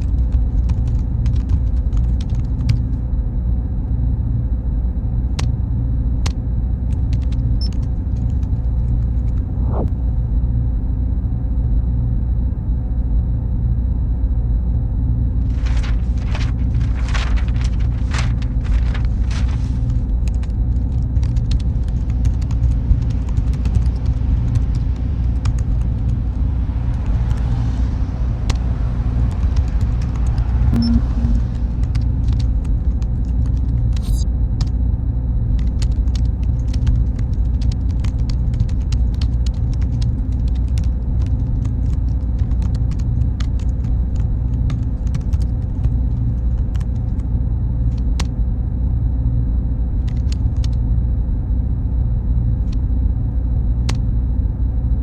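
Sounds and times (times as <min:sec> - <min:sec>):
hum of cooling fans and machines: 0:00.0 - 0:55.0
faint steady mid tone: 0:30.7 - 0:33.0.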